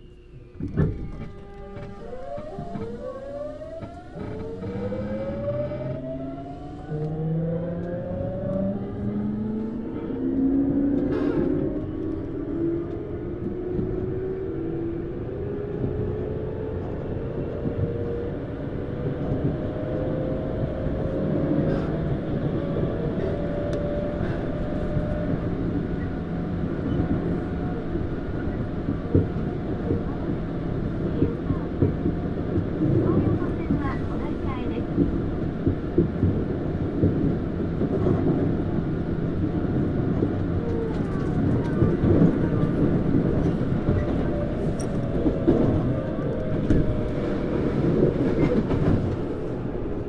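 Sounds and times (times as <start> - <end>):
train motor whine rising: 0.0 - 11.8
wheels rumbling on rails: 0.0 - 50.0.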